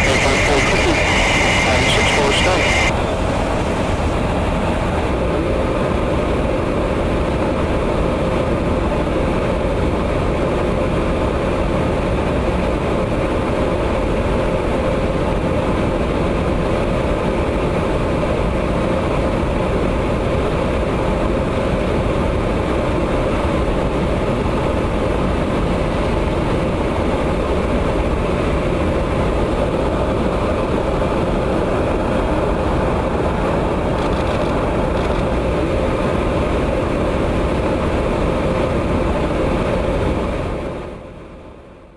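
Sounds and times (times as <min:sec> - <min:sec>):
jet engine and airflow drone: 0:00.0 - 0:09.4, 0:21.8 - 0:41.9.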